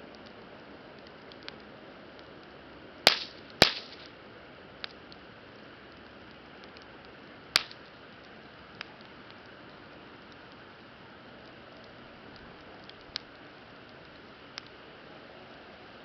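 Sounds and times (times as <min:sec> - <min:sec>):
campfire crackling: 0:00.0 - 0:16.0
low hiss of burning: 0:00.0 - 0:16.0
sharp fire pops: 0:01.0 - 0:04.2, 0:05.9 - 0:10.7, 0:11.4 - 0:14.8.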